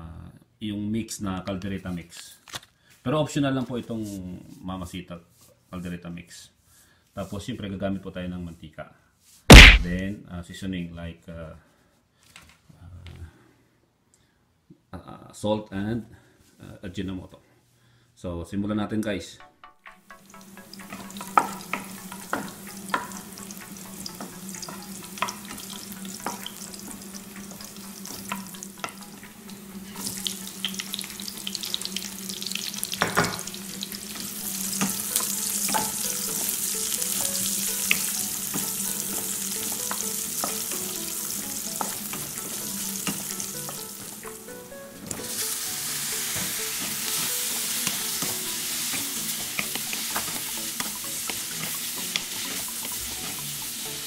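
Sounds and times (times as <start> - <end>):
food sizzling in hot oil: 20.1 - 54.0
wooden spatula scraping a pan: 20.7 - 44.4, 45.2 - 53.6.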